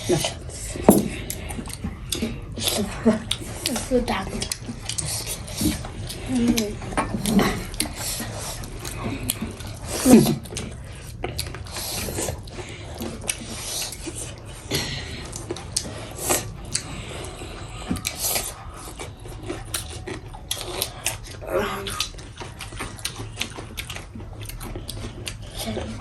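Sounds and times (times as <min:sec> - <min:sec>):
chewing and mouth sounds: 0:00.0 - 0:26.0.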